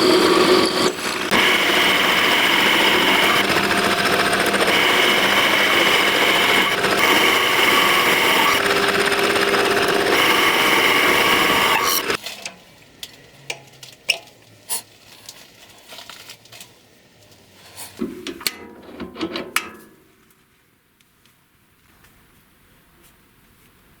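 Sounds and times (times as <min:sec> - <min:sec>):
power tool running: 0:00.0 - 0:12.2
handling knocks and clicks: 0:18.0 - 0:20.4.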